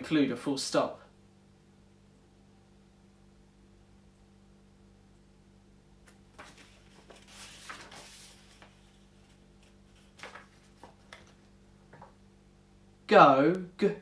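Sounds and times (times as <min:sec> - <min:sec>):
low electrical hum: 0:00.0 - 0:14.0
rustling: 0:06.1 - 0:12.2.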